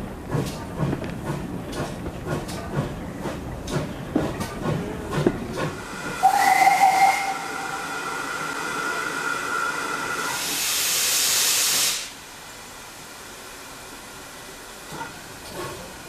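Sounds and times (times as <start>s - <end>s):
loud hiss of escaping steam: 5.7s - 12.5s
steam locomotive whistle: 5.9s - 12.1s.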